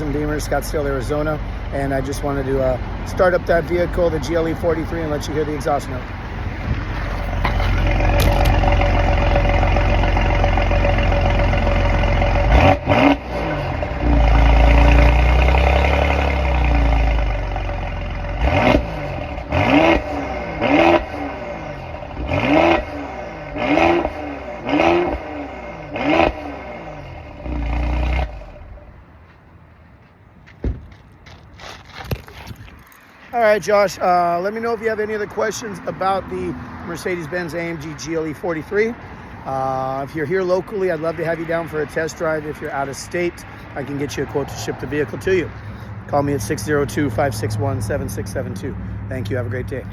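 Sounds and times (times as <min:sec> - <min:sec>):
car engine idling and revving: 0:00.0 - 0:29.3, 0:35.0 - 0:49.9.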